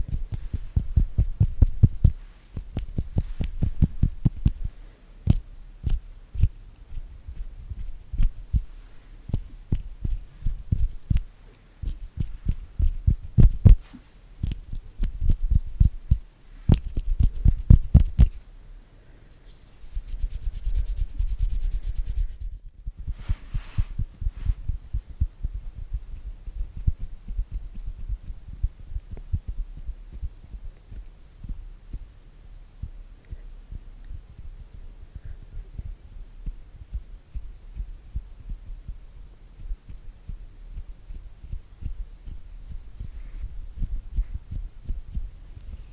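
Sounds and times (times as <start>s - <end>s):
hands rubbing together: 0.0s - 18.4s, 19.5s - 24.9s
hands tapping and patting: 0.0s - 18.4s, 19.8s - 32.1s.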